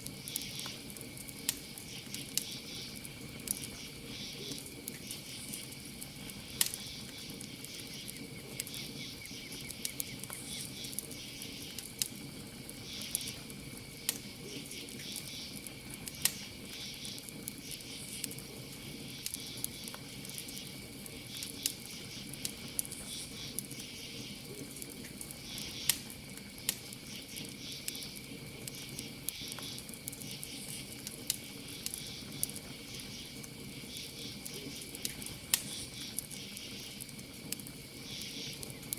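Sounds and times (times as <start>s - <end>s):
campfire wood crackling: 0.0s - 38.9s
crickets chirping: 0.0s - 38.9s.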